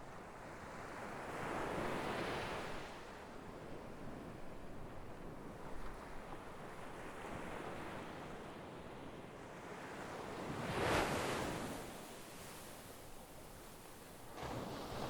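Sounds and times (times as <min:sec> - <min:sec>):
sea waves breaking: 0:14.3 - 0:15.0.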